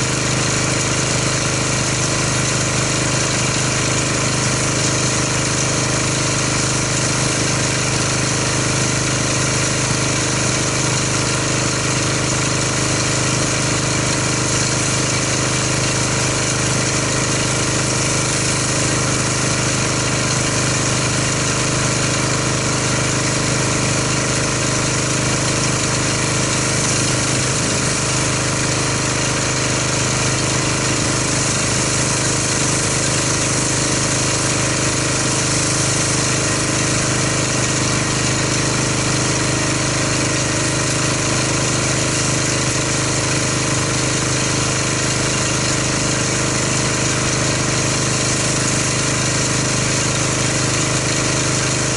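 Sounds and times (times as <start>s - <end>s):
pressure washer engine drone: 0.0s - 51.9s
water spray hissing: 13.1s - 21.8s, 23.1s - 43.2s.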